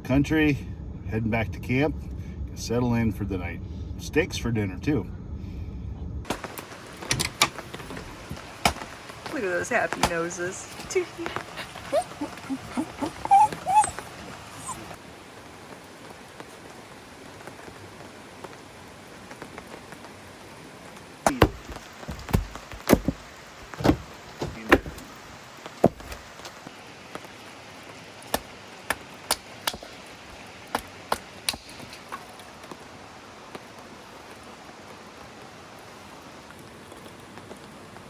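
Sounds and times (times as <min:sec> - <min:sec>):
steady rain hiss: 0:00.0 - 0:05.2, 0:06.3 - 0:38.0
heavy raindrops knocking on surface: 0:06.3 - 0:13.2, 0:15.6 - 0:38.0.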